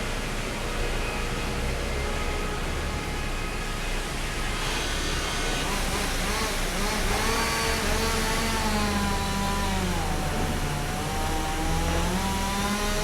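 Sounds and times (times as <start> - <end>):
sawmill machinery running: 3.6 - 13.0.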